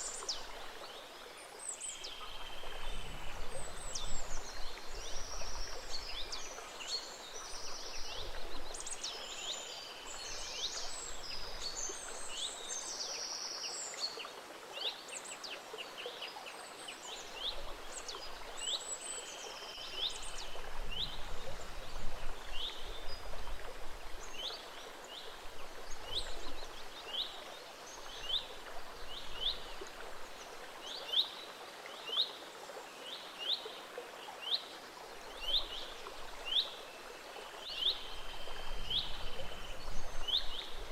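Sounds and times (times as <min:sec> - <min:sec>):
stream flowing: 0:00.0 - 0:40.9.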